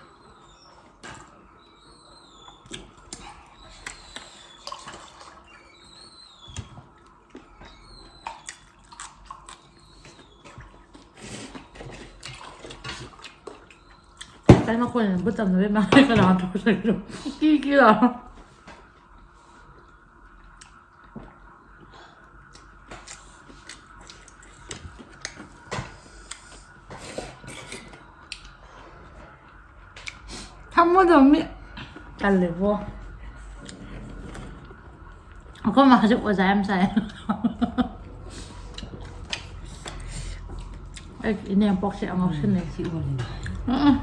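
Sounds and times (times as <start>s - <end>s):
wet chewing: 2.4s - 14.5s, 22.3s - 28.6s, 38.3s - 41.2s
utensils scraping dishes: 27.1s - 28.0s.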